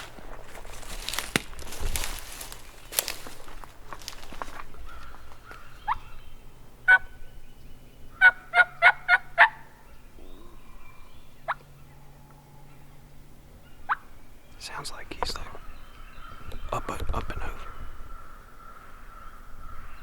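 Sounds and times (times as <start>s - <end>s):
turkey call yelps: 4.9s - 6.1s, 6.9s - 7.2s, 8.1s - 9.8s, 13.8s - 14.1s.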